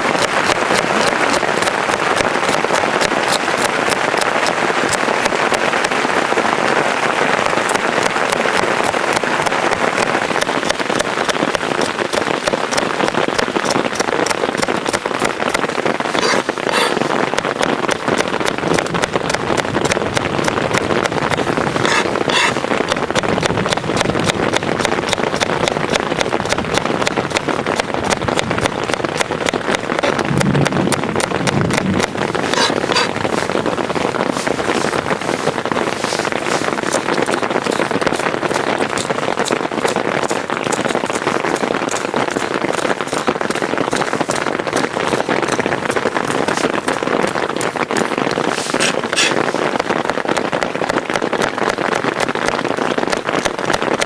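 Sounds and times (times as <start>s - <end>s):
heavy rain on a tent: 0.0s - 54.0s
low thud: 30.2s - 32.5s.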